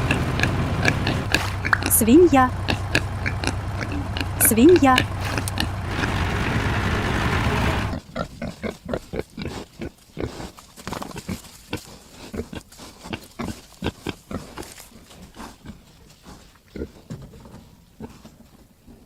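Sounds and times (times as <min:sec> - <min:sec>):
loud dense noise: 0:00.0 - 0:08.0
pig grunting and snuffling: 0:00.0 - 0:19.0.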